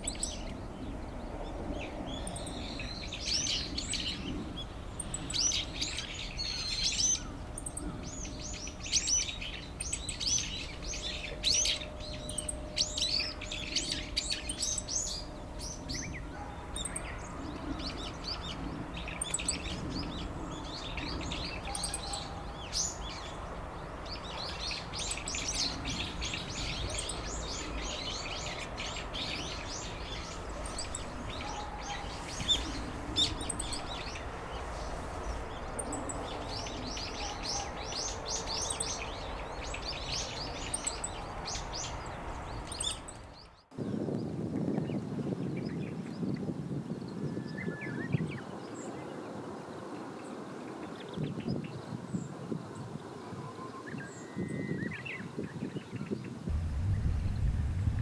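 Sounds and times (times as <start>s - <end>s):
low outdoor background: 0.0s - 44.5s, 56.4s - 58.0s
small birds chirping: 0.0s - 58.0s.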